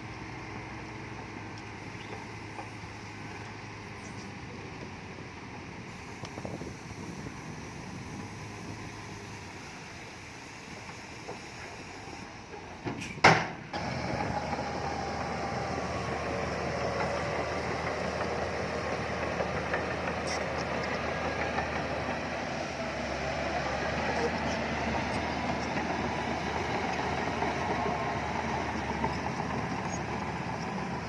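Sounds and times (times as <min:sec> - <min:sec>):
heavy machinery engine running: 0:13.5 - 0:31.0.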